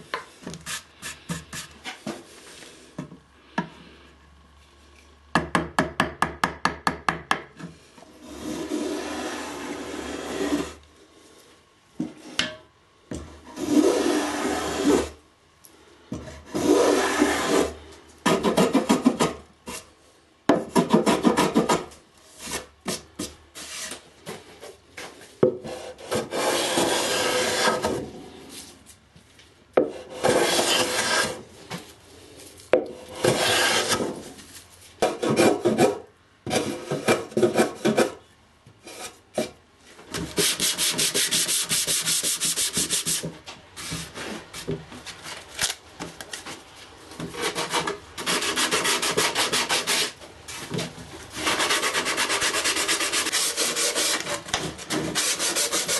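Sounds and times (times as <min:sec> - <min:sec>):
sanding wood by hand: 0:25.7 - 0:27.9, 0:40.4 - 0:43.3, 0:47.4 - 0:50.2, 0:51.4 - 0:55.9.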